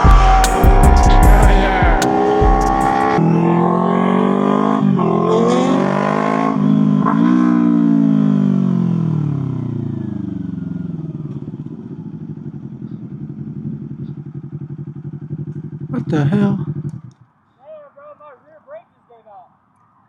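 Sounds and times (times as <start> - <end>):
motorcycle engine idling: 0.0 - 3.2, 8.5 - 17.4
motorcycle engine revving: 0.0 - 17.4.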